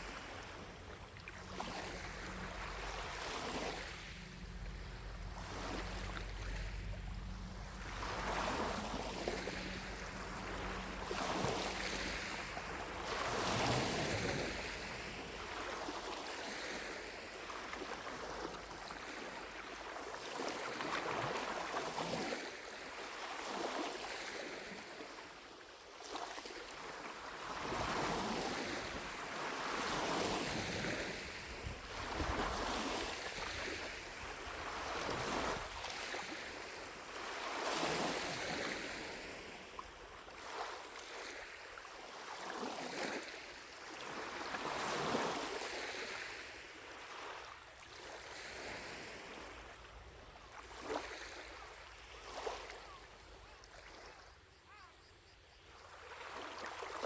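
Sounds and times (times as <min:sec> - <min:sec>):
lake waves lapping shore: 0:00.0 - 0:55.0, 0:55.7 - 0:57.0
low steady rumble: 0:00.5 - 0:15.8.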